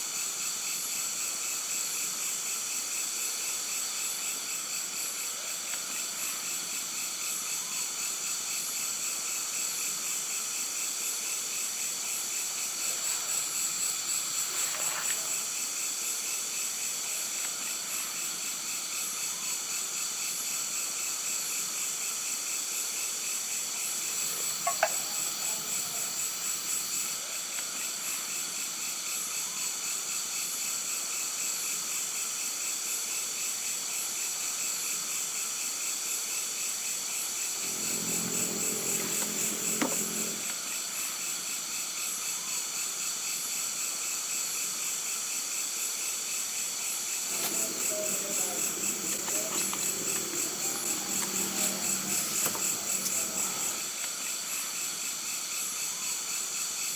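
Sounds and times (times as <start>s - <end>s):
insects trilling: 11.5s - 20.5s, 23.5s - 28.7s, 37.3s - 41.0s, 46.7s - 56.9s.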